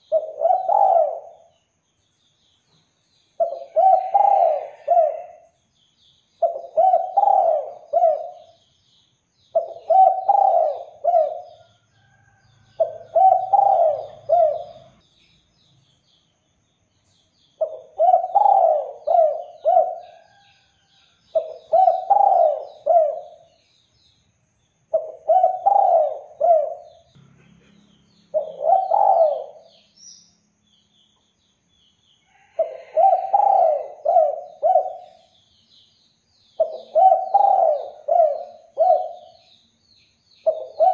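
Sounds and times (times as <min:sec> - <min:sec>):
dove cooing: 0:00.0 - 0:01.5, 0:03.4 - 0:05.5, 0:06.4 - 0:08.6, 0:09.5 - 0:11.6, 0:12.8 - 0:15.0, 0:17.6 - 0:20.4, 0:21.3 - 0:23.5, 0:24.9 - 0:27.0, 0:28.3 - 0:29.8, 0:32.4 - 0:35.3, 0:36.6 - 0:39.4, 0:40.4 - 0:40.9
small birds chirping: 0:00.0 - 0:40.9.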